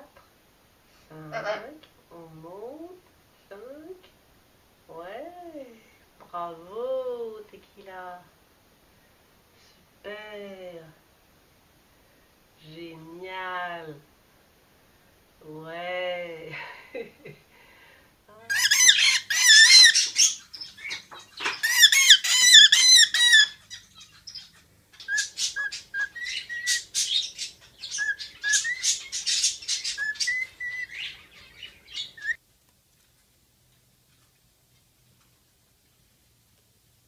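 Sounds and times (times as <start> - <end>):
parrot warbling calls: 18.4 - 32.4
parrot chirping notes: 18.5 - 32.4.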